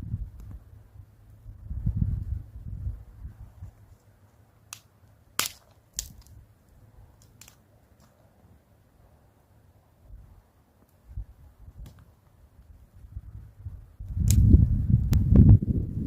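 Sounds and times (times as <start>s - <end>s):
sharp snaps: 4.7s - 6.4s, 7.2s - 8.2s, 14.1s - 15.3s.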